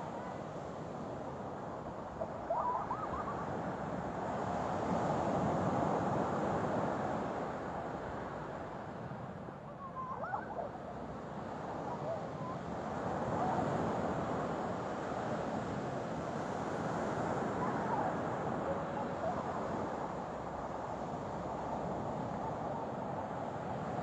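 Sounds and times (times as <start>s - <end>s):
high squeaky calls: 9.8s - 10.7s.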